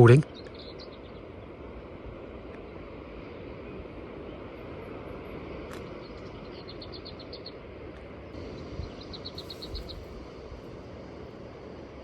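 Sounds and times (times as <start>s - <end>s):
background hiss: 7.7s - 12.0s
bird song dry rattles: 9.0s - 10.2s.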